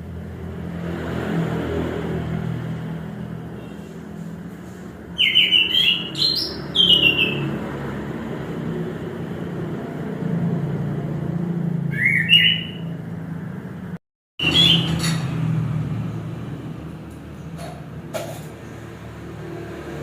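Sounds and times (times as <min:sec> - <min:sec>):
thrush singing whistled notes: 0:05.1 - 0:07.5, 0:11.9 - 0:13.0, 0:14.4 - 0:15.2.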